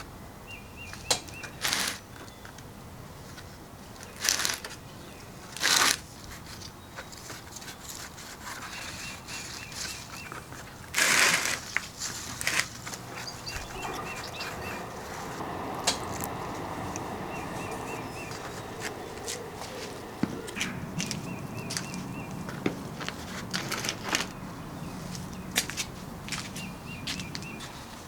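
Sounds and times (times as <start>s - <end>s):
crunching rustling noises: 1.4s - 28.0s.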